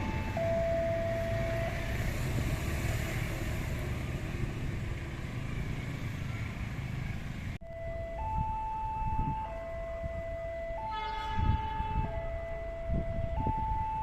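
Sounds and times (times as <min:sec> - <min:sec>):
level-crossing alarm two tones: 0:00.0 - 0:01.8
rumble of passing traffic: 0:00.0 - 0:14.0.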